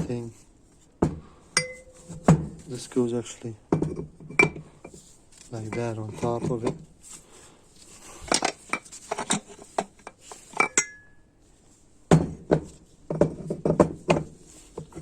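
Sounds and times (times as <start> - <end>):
metal part ringing: 1.6 - 2.2, 10.6 - 11.2.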